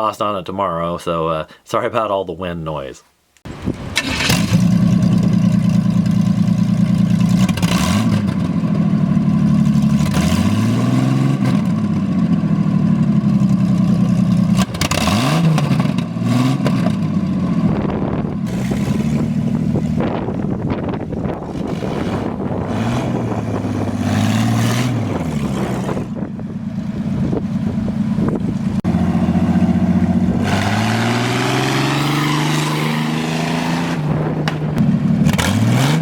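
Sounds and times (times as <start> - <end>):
wind buffeting microphone: 3.5 - 4.3, 17.4 - 32.0, 33.0 - 35.1
engine running without mufflers: 3.5 - 36.0.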